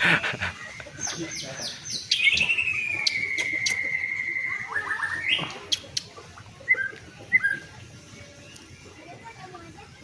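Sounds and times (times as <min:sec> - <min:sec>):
bird singing whistled phrases: 0:01.0 - 0:07.7.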